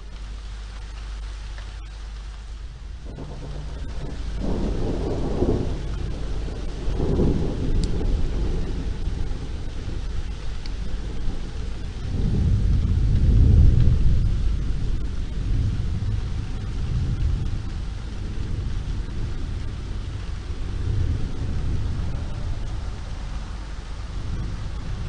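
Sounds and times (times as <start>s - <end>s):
rain hissing: 0.0s - 25.0s
low rolling thunder: 2.5s - 25.0s.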